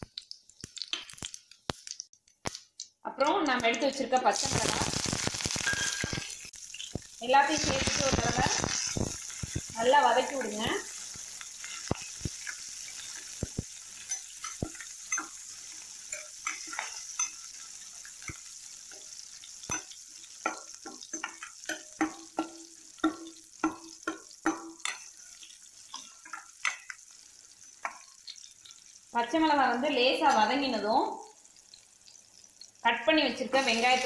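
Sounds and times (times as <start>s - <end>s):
spices sizzling in hot oil: 0.0s - 34.0s
steel spoon scraping a pan: 4.4s - 27.0s.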